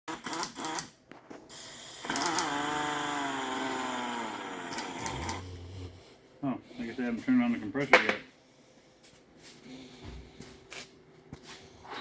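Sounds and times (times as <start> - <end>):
pneumatic tool clicks: 0.1 - 0.9, 2.0 - 3.8, 4.5 - 5.4
pneumatic tool motor whining: 0.1 - 0.9, 1.5 - 5.6.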